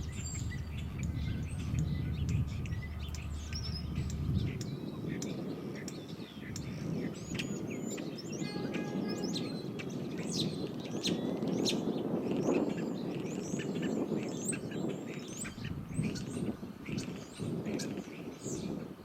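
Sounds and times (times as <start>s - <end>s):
steady low rumble: 0.0s - 11.3s
small birds chirping: 0.0s - 19.0s.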